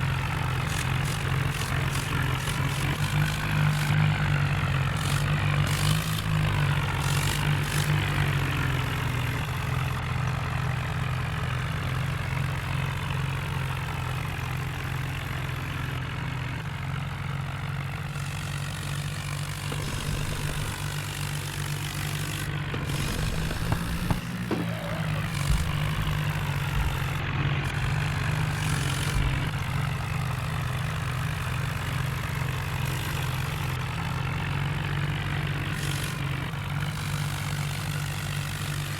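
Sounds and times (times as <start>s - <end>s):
diesel engine humming: 0.0s - 38.9s
short knocks: 22.7s - 27.4s.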